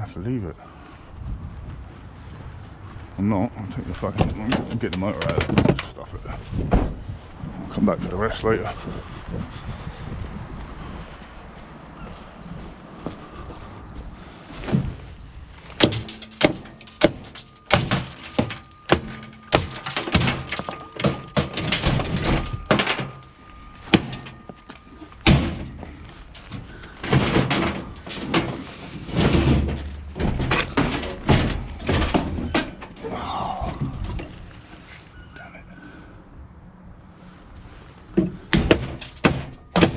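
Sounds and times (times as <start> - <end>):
metal clanks and bangs: 3.9 - 6.2, 15.6 - 34.5, 38.1 - 39.9
ringing sheet metal: 15.8 - 28.8.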